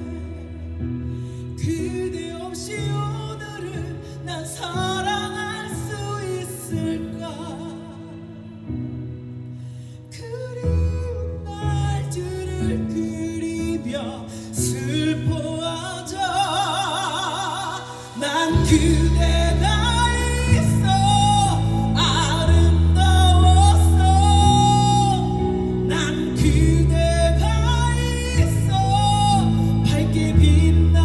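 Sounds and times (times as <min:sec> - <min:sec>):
woman singing with vibrato: 0:15.0 - 0:31.0
band with heavy bass: 0:18.6 - 0:31.0.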